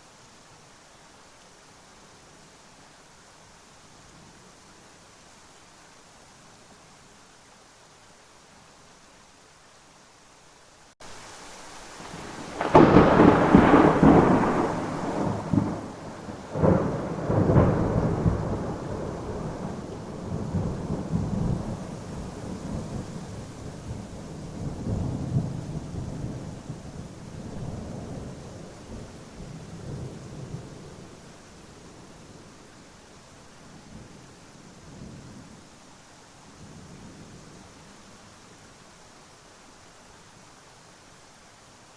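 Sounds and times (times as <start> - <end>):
rain hiss: 0.0 - 41.9
thunder cracks and rumbles: 12.1 - 23.1.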